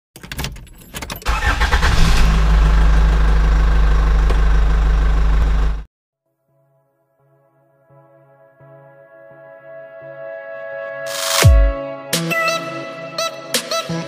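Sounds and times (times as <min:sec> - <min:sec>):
car engine cranking and starting: 0:00.2 - 0:05.9
car engine idling: 0:01.3 - 0:05.9.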